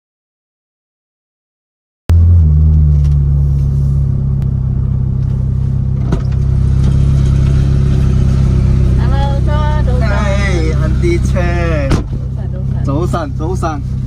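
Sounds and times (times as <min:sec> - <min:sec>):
car engine idling: 0:02.1 - 0:14.0.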